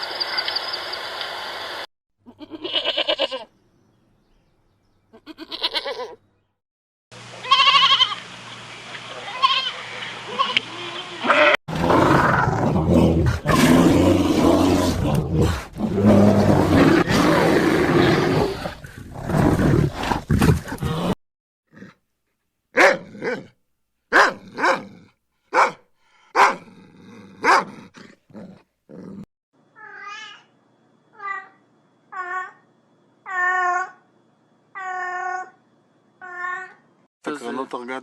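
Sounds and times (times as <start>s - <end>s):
animal growling roar: 11.7s - 21.2s.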